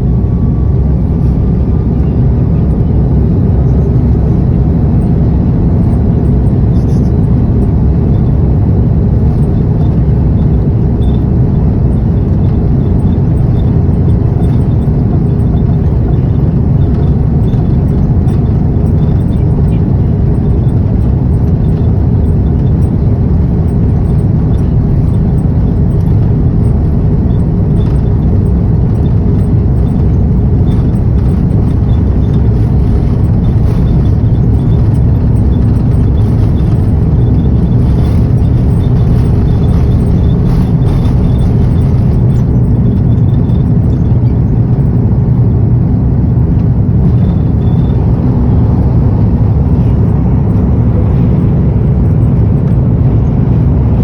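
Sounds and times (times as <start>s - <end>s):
jet engines rumbling: 0.0s - 54.0s
rushing air: 46.0s - 54.0s.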